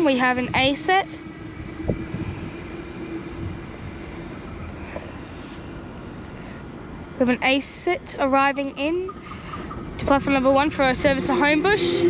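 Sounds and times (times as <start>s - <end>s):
electric train rumbling: 0.0s - 12.0s
steady hum: 0.0s - 12.0s.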